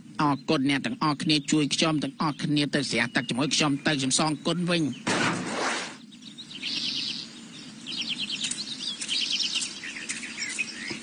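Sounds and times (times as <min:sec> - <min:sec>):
low background hiss: 0:00.0 - 0:05.0
birds chirping: 0:00.0 - 0:11.0
short rushing noise: 0:05.1 - 0:06.0.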